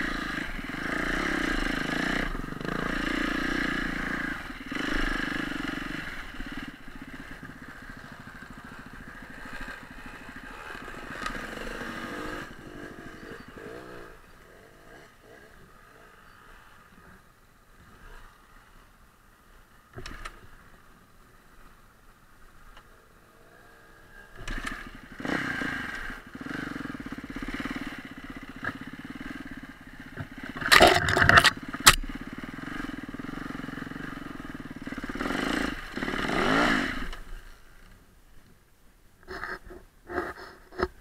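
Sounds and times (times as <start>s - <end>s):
motorbike engine revving: 0.0s - 16.6s, 24.4s - 37.2s.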